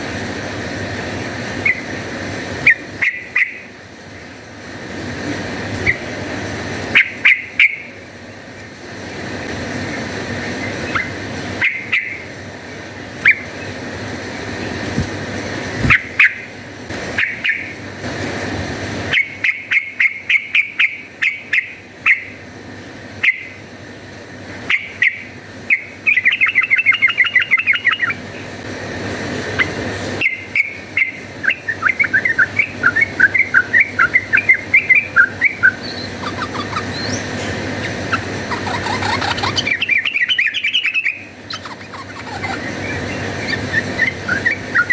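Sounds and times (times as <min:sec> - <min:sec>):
bulbul chirping and chattering: 0:30.3 - 0:44.9.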